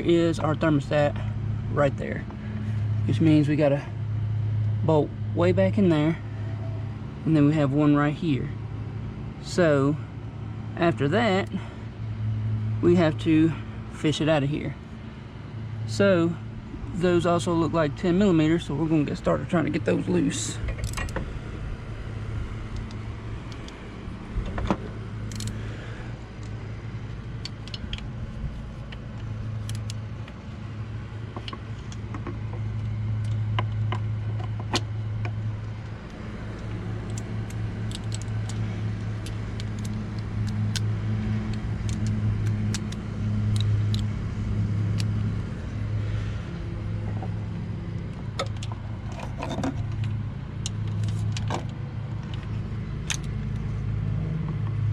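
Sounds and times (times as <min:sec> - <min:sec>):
steady low hum: 0:00.0 - 0:54.9
metallic clicks of hand tools: 0:25.2 - 0:25.6, 0:36.5 - 0:44.1.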